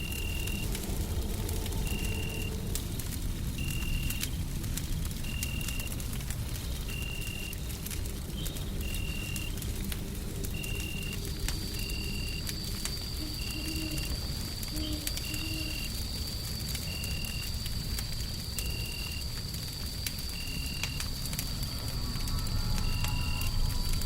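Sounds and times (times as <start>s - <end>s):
low white noise rumble: 0.0s - 13.4s
wood fire crackling: 0.0s - 24.0s.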